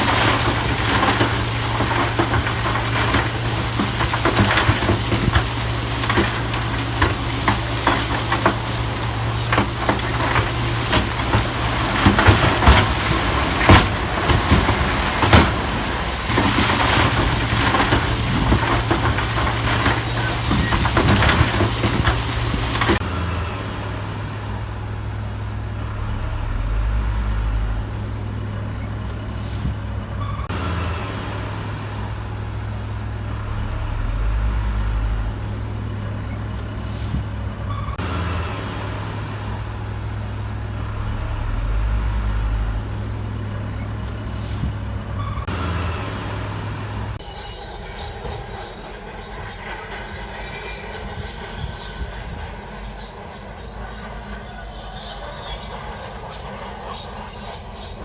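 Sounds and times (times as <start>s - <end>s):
clanks and knocks of metal and stone: 0.0s - 23.0s
diesel construction machinery engine: 0.0s - 58.0s.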